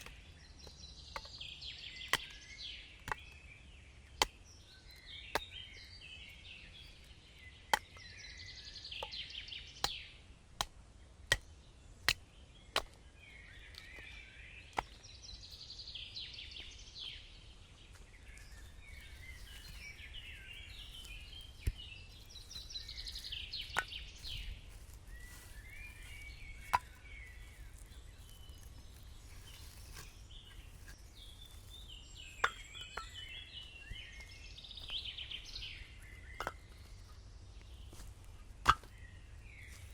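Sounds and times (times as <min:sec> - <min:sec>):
bird singing warbled phrases: 0:00.0 - 0:10.3, 0:11.3 - 0:39.9.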